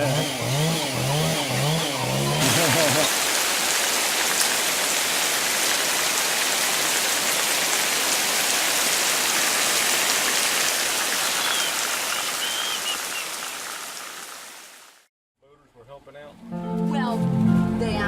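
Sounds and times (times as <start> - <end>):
heavy rain hissing: 2.4 - 15.1.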